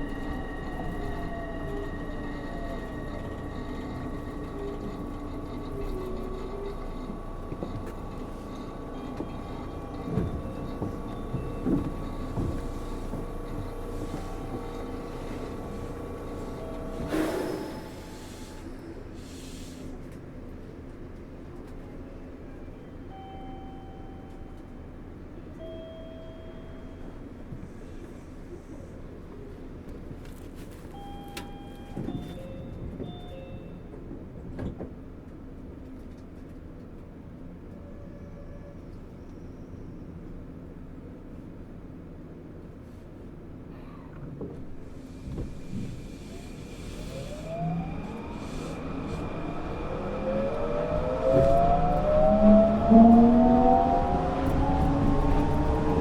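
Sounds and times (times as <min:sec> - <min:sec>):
train car running rumble: 0:00.0 - 0:56.0.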